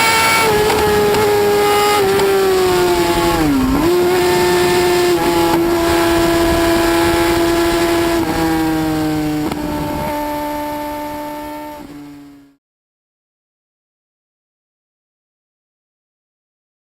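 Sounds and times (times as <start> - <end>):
motorcycle engine revving high: 0.0 - 12.6.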